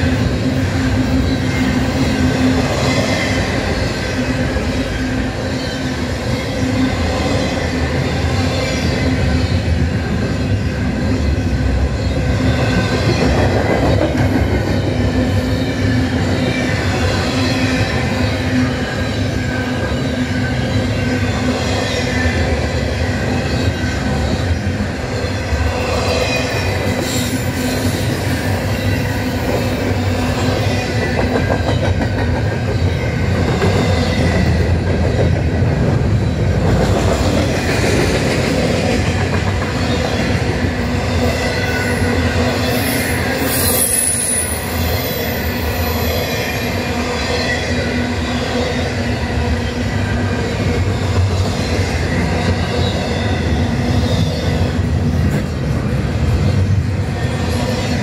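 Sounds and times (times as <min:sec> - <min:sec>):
train wheels rumbling on rails: 0:00.0 - 0:58.0
wheel squeal: 0:41.6 - 0:46.6.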